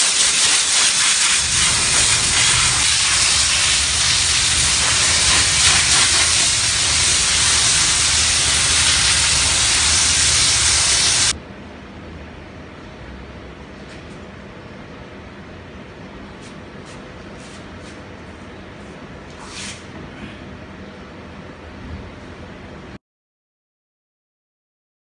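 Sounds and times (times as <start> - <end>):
steam wand hissing: 0.0 - 11.4
low machine rumble: 1.4 - 16.3.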